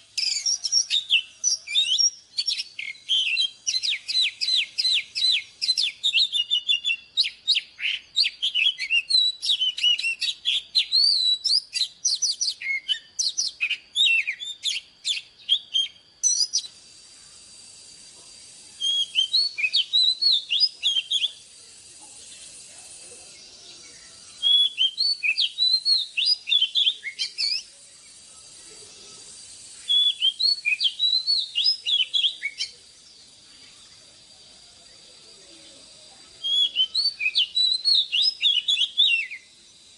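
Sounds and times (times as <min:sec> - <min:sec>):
bird singing: 0:00.0 - 0:39.9
faint steady hiss: 0:00.0 - 0:39.9.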